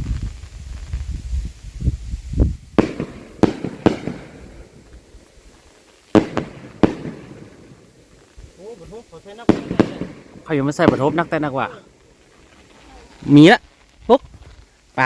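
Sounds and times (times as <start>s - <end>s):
distant fireworks bangs: 2.7s - 13.4s.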